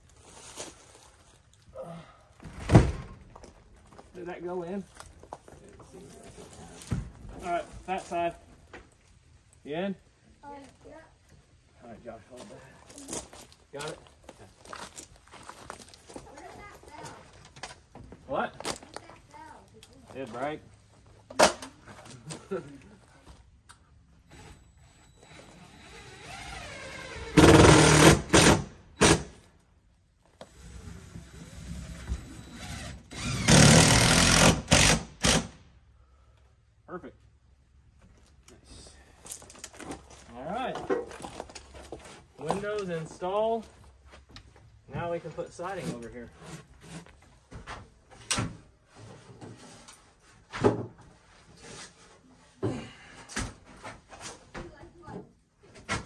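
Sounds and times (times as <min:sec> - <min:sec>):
impact driver rattling bursts: 0:27.3 - 0:29.3, 0:32.7 - 0:35.6.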